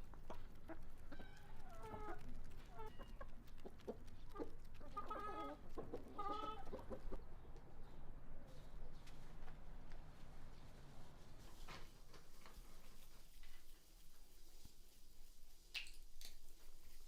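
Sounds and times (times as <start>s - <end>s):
chickens clucking: 0.1s - 8.7s.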